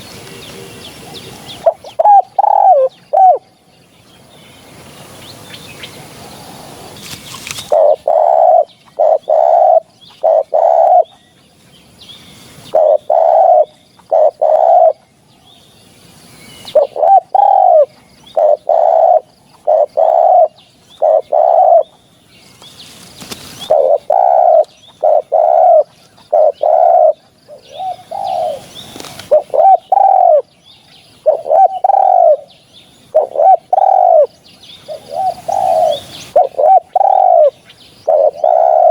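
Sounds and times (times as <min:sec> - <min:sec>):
hiss-like noise: 0:00.0 - 0:03.0, 0:04.0 - 0:08.0, 0:11.5 - 0:13.5, 0:15.4 - 0:19.0, 0:27.7 - 0:29.7, 0:34.7 - 0:38.0
dove cooing: 0:00.0 - 0:03.5, 0:07.5 - 0:11.2, 0:12.6 - 0:15.1, 0:16.6 - 0:21.9, 0:23.5 - 0:30.5, 0:31.2 - 0:32.5, 0:33.1 - 0:38.9.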